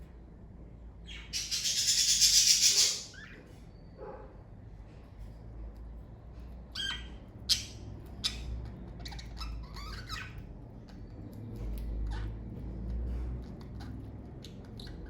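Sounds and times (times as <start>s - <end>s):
low steady hum: 0.0s - 15.0s
budgerigars chirping and squawking: 1.0s - 3.6s, 6.7s - 15.0s.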